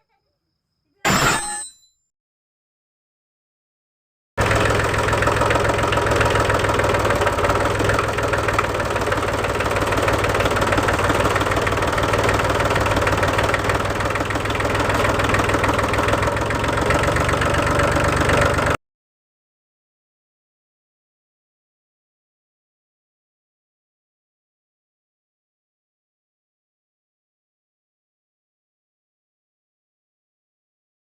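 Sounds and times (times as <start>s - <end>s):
small diesel engine knocking rattle: 4.4s - 18.8s.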